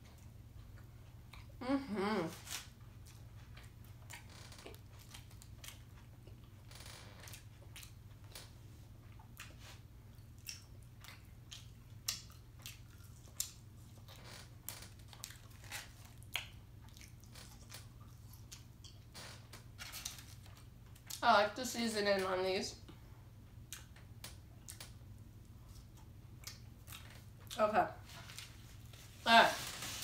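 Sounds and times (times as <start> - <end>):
person chewing fries: 2.4 - 21.2, 23.6 - 27.6.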